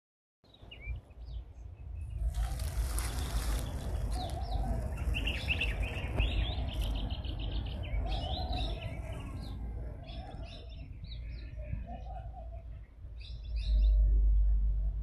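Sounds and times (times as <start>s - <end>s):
small birds chirping: 0.5s - 14.5s
low rumble: 12.9s - 15.0s.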